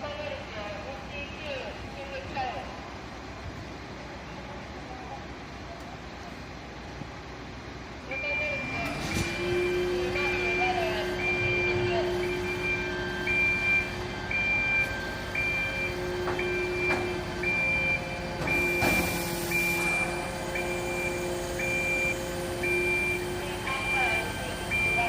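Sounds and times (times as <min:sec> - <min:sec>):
engine hum: 0:05.8 - 0:25.0
reversing alarm beeping: 0:08.1 - 0:25.0.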